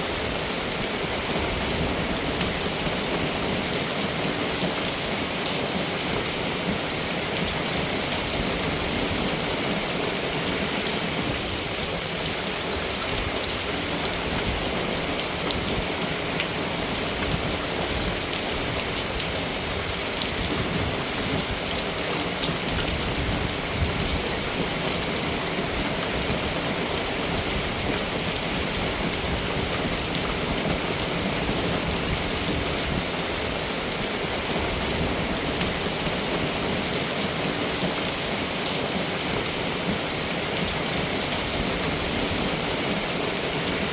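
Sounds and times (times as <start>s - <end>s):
steady rain falling: 0.0s - 43.9s
raindrops ticking on a surface: 10.5s - 34.3s.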